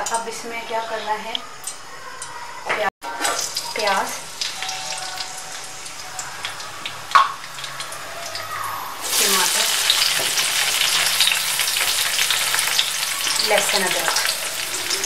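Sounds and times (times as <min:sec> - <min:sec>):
tomatoes sizzling in hot oil: 0:03.1 - 0:15.0.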